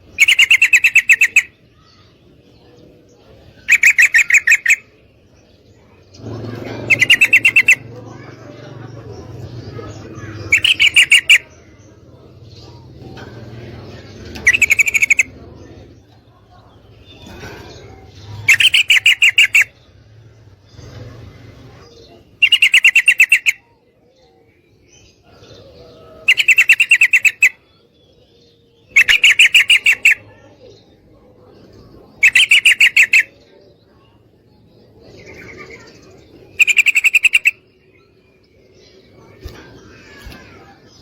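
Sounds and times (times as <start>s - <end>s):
bird chattering call: 0.0s - 2.1s, 3.6s - 5.0s, 6.2s - 11.7s, 14.2s - 16.0s, 17.0s - 19.9s, 22.0s - 23.7s, 26.2s - 27.7s, 28.8s - 30.4s, 32.1s - 33.4s, 35.2s - 38.1s
faint bird chatter: 0.0s - 41.0s.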